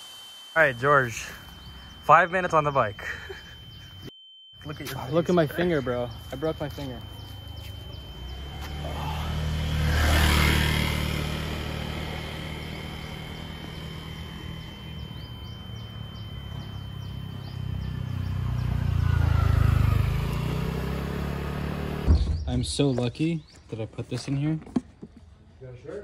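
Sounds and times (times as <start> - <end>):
thin high-pitched tone: 0.0 - 8.6
vehicle engines passing: 4.8 - 22.2.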